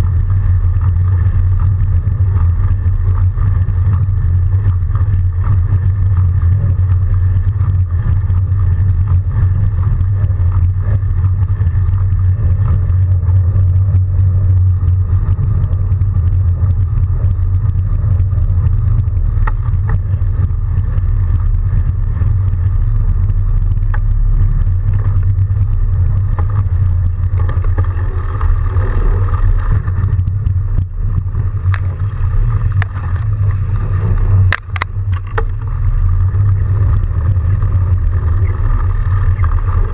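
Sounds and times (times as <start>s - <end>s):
faint clicks and ticks: 0.0s - 39.9s
road noise: 0.0s - 39.9s
wind rumble on microphone: 0.0s - 39.9s.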